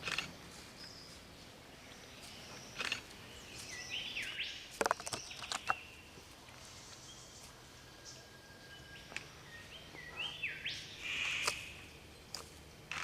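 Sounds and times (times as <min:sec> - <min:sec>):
sharp bird calls: 0:01.8 - 0:06.2, 0:07.0 - 0:12.1.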